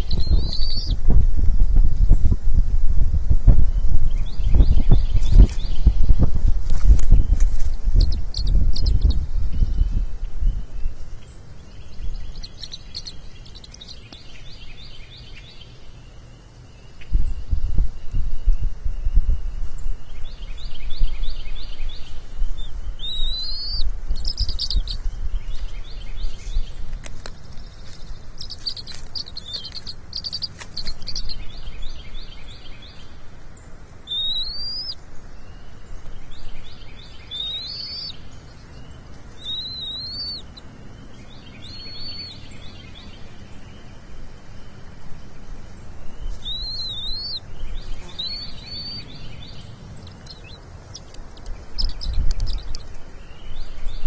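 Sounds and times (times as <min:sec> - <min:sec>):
fast trilled bird chirps: 0:00.0 - 0:01.0, 0:12.3 - 0:14.1, 0:23.0 - 0:25.0, 0:28.4 - 0:31.7, 0:34.1 - 0:35.0, 0:37.2 - 0:38.1, 0:39.4 - 0:40.6, 0:41.6 - 0:42.4, 0:46.2 - 0:52.9
rising whistled bird notes: 0:00.0 - 0:01.0, 0:16.9 - 0:26.4, 0:34.1 - 0:38.8, 0:39.4 - 0:40.6, 0:41.2 - 0:44.0, 0:46.0 - 0:54.0
low rumble: 0:00.0 - 0:15.0.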